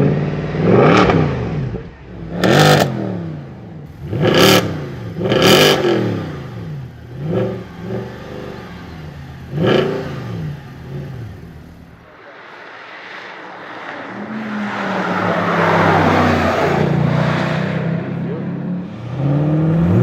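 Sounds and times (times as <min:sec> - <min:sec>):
car engine revving in blips: 0:00.0 - 0:12.1, 0:18.9 - 0:20.0
steady engine note: 0:03.9 - 0:12.1.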